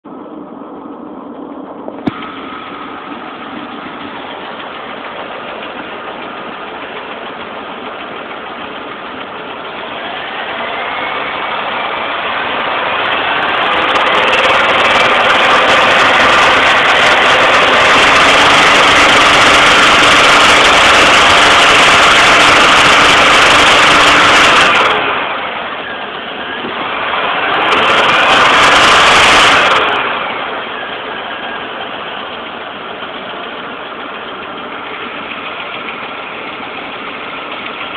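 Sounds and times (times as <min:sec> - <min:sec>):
car engine idling and revving: 0:00.0 - 0:37.9
loud engine rattle: 0:00.0 - 0:37.9.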